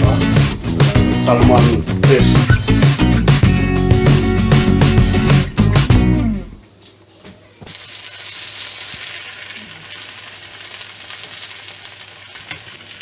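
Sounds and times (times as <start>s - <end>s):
fish sizzling in oil: 7.7s - 13.0s.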